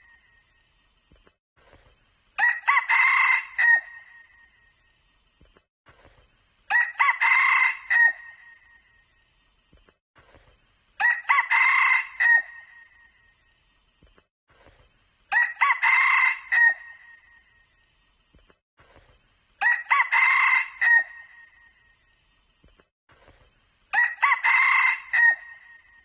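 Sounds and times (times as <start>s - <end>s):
rooster crowing: 2.4s - 4.0s, 6.7s - 8.4s, 11.0s - 12.7s, 15.3s - 17.1s, 19.6s - 21.4s, 23.9s - 25.8s.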